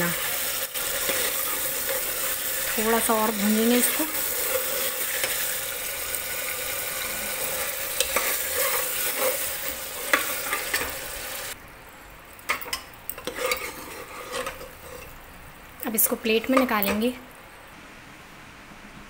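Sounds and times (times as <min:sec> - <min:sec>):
steel spoon scraping a pot: 0:00.0 - 0:11.0, 0:12.6 - 0:15.2
meat sizzling in a pot: 0:00.0 - 0:17.2.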